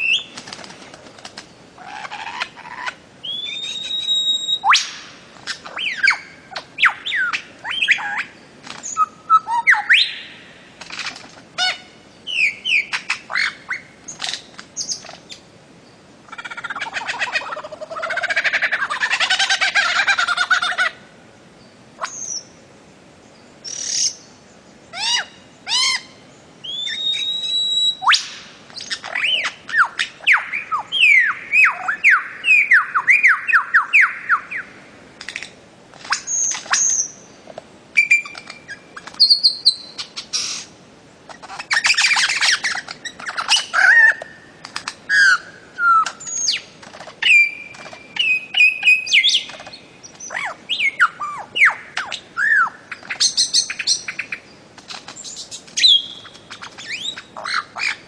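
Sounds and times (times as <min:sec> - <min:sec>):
bird whistles and chirps: 0:00.0 - 0:00.4, 0:03.2 - 0:10.4, 0:11.6 - 0:14.2, 0:25.0 - 0:34.7, 0:38.0 - 0:40.6, 0:45.1 - 0:54.4, 0:55.2 - 0:58.0.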